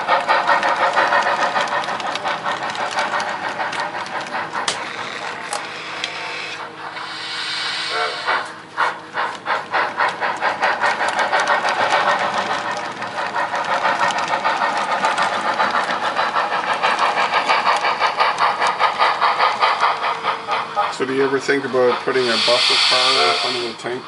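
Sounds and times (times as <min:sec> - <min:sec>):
model steam locomotive chuffing: 0:00.0 - 0:24.0.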